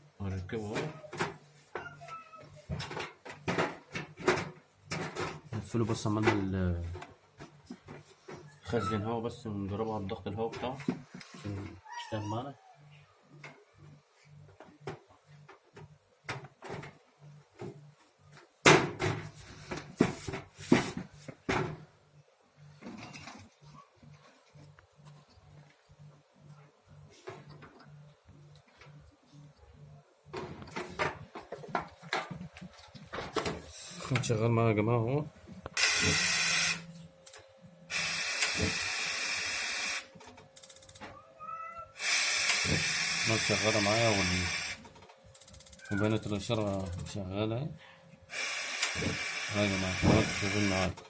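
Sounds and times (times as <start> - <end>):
compressed air hissing: 35.8 - 36.9, 37.9 - 40.1, 42.0 - 44.8, 48.3 - 50.9.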